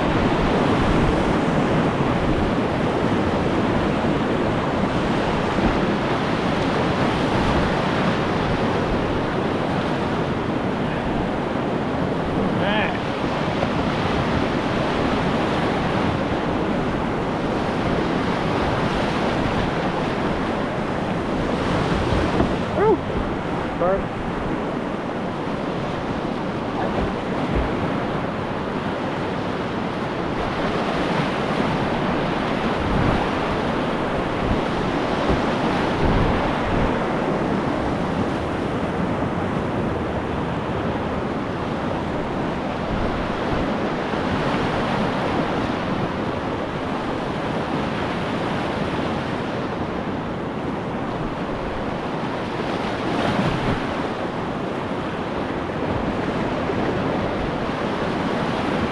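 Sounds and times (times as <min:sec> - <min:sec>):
whitewater rapids rushing: 0:00.0 - 0:25.1, 0:25.9 - 0:38.0
wind buffeting microphone: 0:00.0 - 0:47.6.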